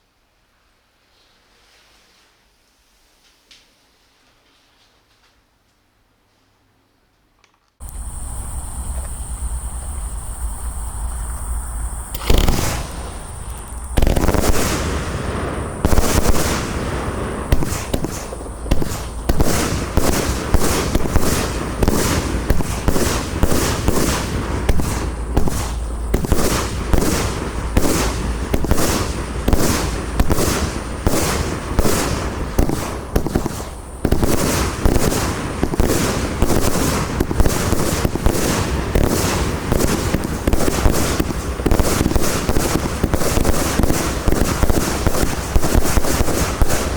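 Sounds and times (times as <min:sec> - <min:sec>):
fireworks crackle: 0:07.8 - 0:46.9
fireworks shots and aerial bursts: 0:11.5 - 0:46.9.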